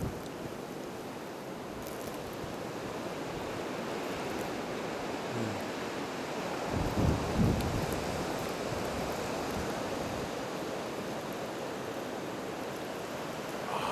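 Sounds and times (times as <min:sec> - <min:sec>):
wind gusts buffeting microphone: 0:06.7 - 0:08.0.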